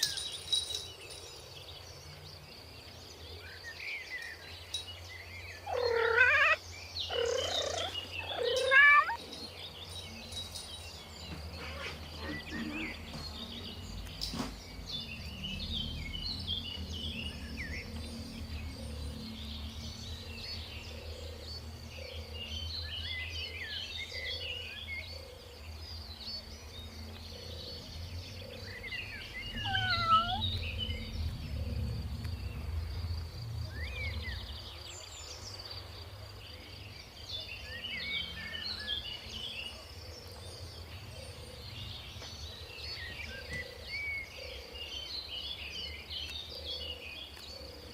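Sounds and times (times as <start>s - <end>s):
birds chirping: 0.0s - 47.9s
curving bird call: 5.6s - 9.2s, 29.2s - 30.8s
low rumble: 13.4s - 21.6s, 27.6s - 35.7s.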